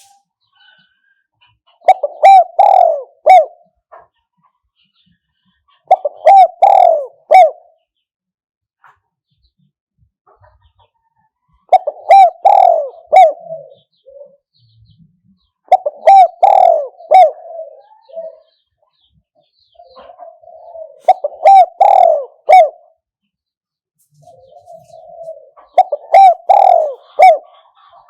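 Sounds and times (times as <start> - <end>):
dove cooing: 1.7 - 3.8, 5.8 - 7.8, 11.6 - 14.7, 15.6 - 18.6, 19.8 - 23.0, 24.2 - 28.0.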